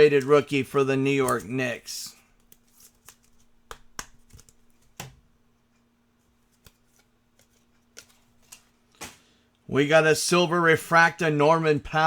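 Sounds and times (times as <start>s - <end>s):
trading cards clicking and snapping: 1.2s - 1.5s, 2.3s - 5.2s.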